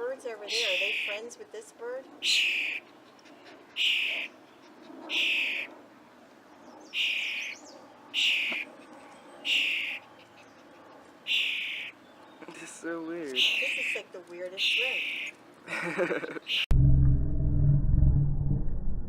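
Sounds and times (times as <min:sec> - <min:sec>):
bird buzzy call: 0:02.2 - 0:02.8, 0:03.8 - 0:04.4, 0:05.1 - 0:05.7, 0:06.9 - 0:07.6, 0:08.2 - 0:08.7, 0:09.4 - 0:10.0, 0:11.3 - 0:12.0, 0:13.4 - 0:15.3.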